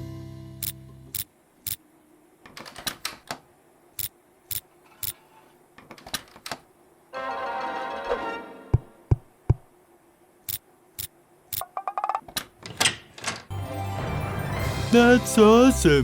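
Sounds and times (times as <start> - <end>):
background music: 7.2 - 9.1, 13.5 - 16.0
cartoon clicks and taps: 10.5 - 12.2.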